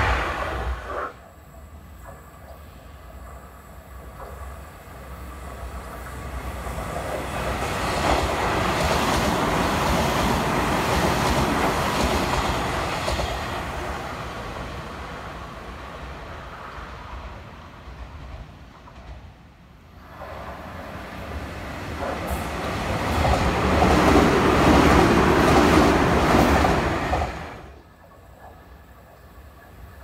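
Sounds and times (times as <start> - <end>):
electric train passing: 0.0 - 30.0
wheels clacking over rail joints: 2.0 - 14.0.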